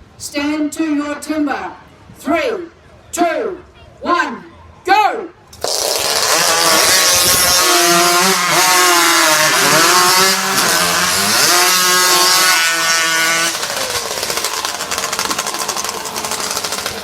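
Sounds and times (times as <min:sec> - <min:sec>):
chainsaws cutting logs: 0:05.6 - 0:17.0.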